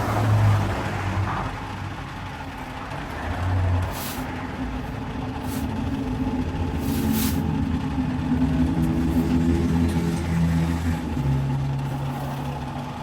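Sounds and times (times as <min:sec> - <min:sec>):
motor running: 0:03.8 - 0:07.4
short high hisses: 0:03.9 - 0:04.3, 0:05.4 - 0:05.7, 0:06.8 - 0:07.4.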